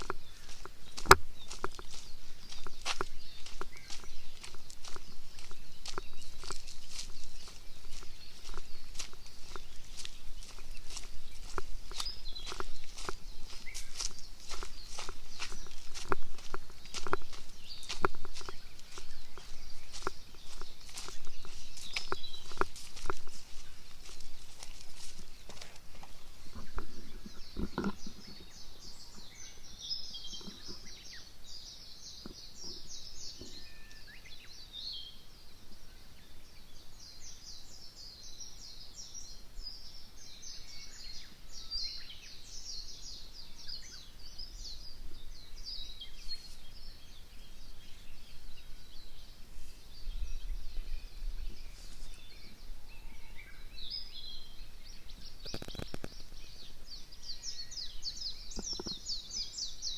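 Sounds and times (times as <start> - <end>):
birds singing and chirping: 0.0 - 59.9
brief rustle or crunch: 7.9 - 28.5, 55.4 - 56.3.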